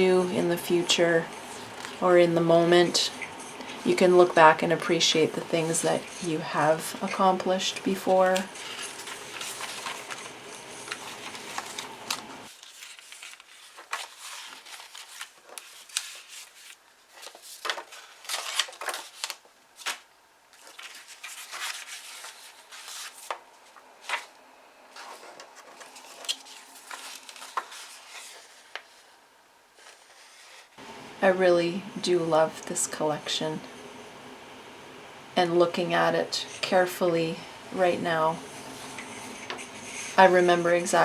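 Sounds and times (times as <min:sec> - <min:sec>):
paper pages rustling and turning: 0:00.0 - 0:29.1, 0:29.8 - 0:30.8, 0:38.5 - 0:41.0.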